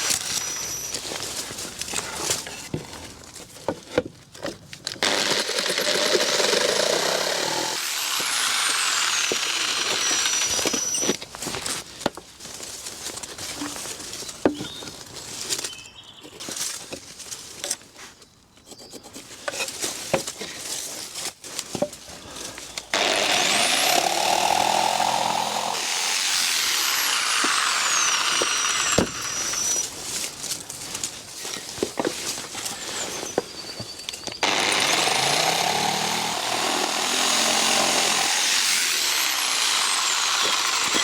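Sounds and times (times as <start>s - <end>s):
power saw cutting wood: 0.0s - 2.7s, 5.0s - 11.2s, 22.8s - 30.0s, 34.4s - 41.0s.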